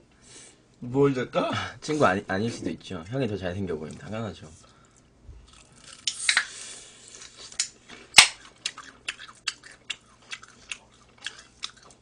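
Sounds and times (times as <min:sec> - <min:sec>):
crunchy chewing of fried chicken: 0:05.4 - 0:12.0.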